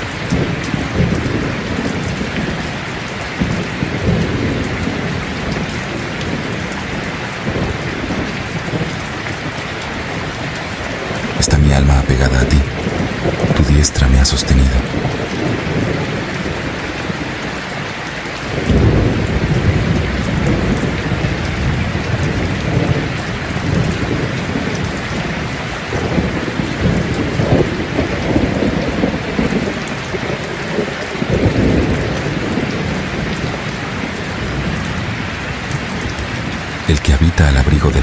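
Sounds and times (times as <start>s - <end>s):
steady rain: 0.0s - 38.0s
low rolling thunder: 18.5s - 36.6s.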